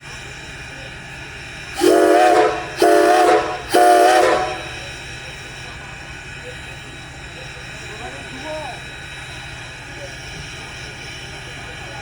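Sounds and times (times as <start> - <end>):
steam locomotive chime whistle: 1.8 - 5.0.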